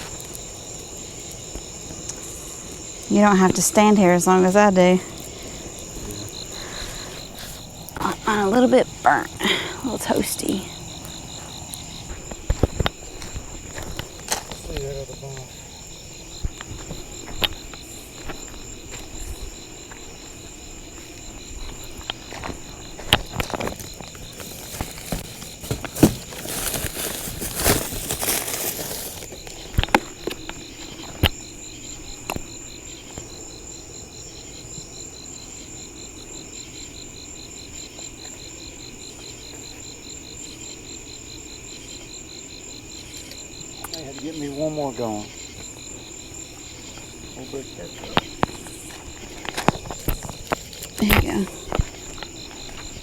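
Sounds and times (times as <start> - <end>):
crickets and night insects: 0.0 - 53.0
rustling noise: 22.4 - 29.5.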